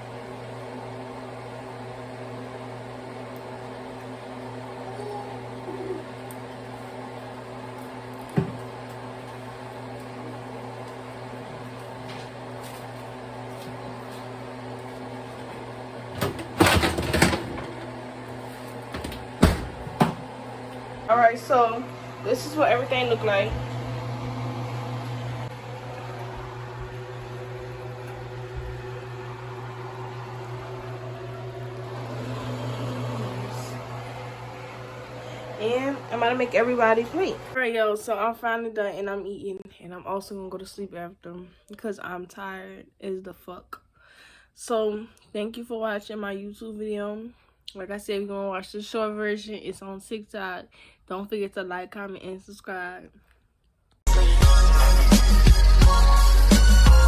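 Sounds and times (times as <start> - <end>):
electric motor humming: 0.0 - 37.6.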